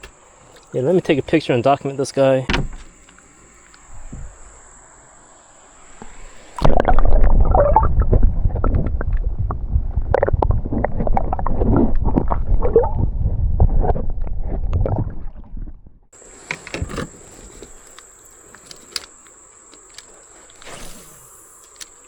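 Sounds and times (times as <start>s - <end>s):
water gurgling and splashing: 6.3s - 13.8s
heavy low rumble: 6.7s - 16.1s.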